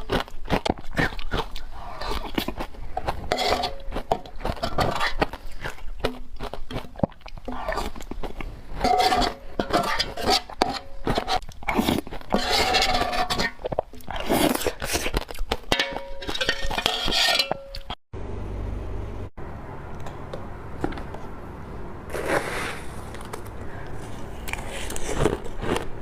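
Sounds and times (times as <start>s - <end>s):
crunching frozen ice: 0.0s - 17.3s, 22.1s - 26.0s
low steady hum: 1.4s - 26.0s.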